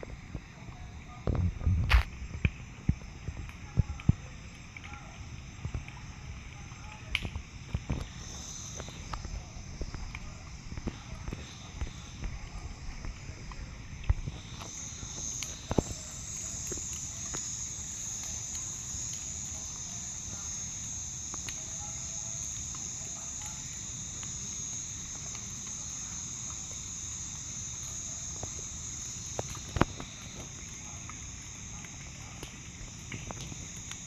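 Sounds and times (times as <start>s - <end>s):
bonfire crackling pops: 0.0s - 34.0s
insects trilling: 0.0s - 34.0s.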